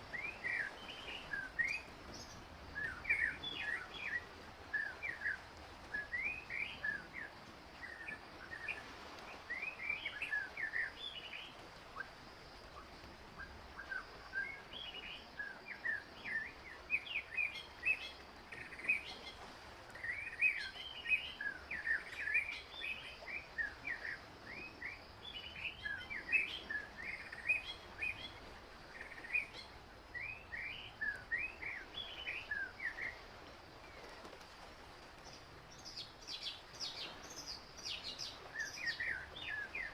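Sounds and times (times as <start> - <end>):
faint background hiss: 0.0 - 39.9.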